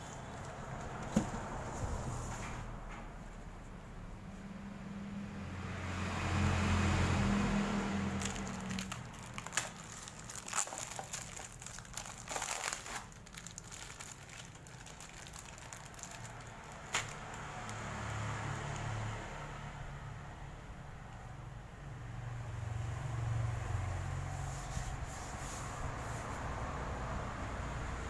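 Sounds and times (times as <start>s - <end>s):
packaging crinkling and rustling: 8.1s - 18.3s.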